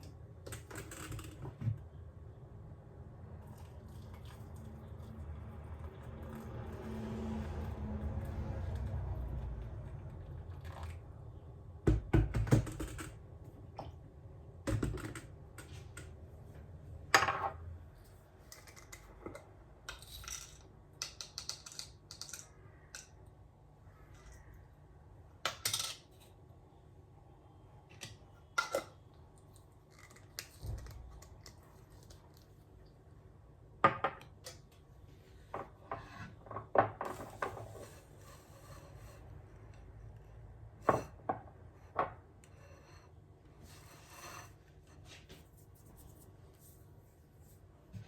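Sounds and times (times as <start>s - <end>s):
small objects clicking and knocking: 18.5s - 23.2s.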